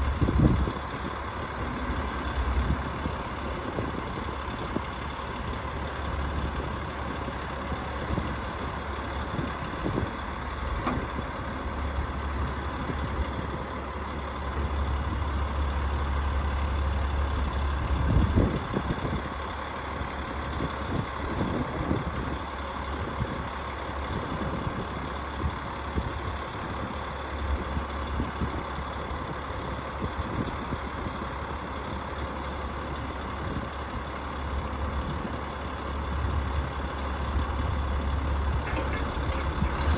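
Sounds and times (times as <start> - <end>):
rooftop unit humming: 37.1 - 39.9
bump: 38.6 - 39.9.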